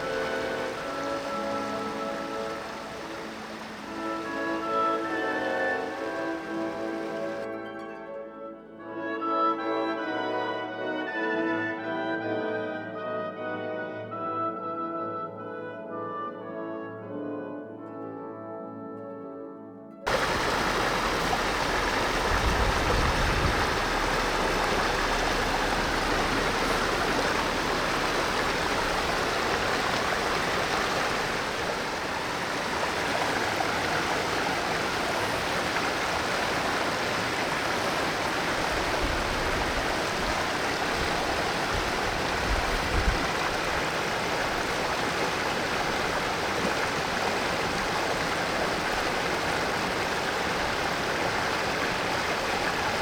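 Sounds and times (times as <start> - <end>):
stream flowing: 0.0 - 8.2, 20.1 - 53.0
low rumbles: 20.1 - 35.6.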